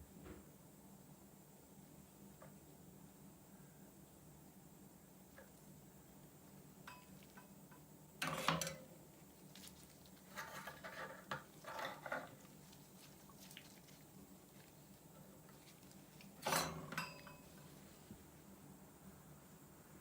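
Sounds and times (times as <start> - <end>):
tools and parts clattering: 10.4 - 12.4, 16.4 - 17.4.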